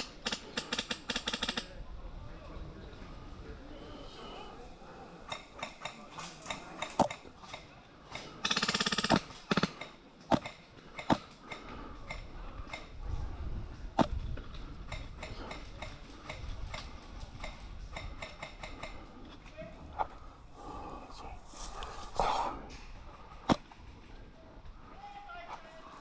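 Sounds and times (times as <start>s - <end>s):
wind rumble on microphone: 1.6s - 3.7s, 11.9s - 24.8s.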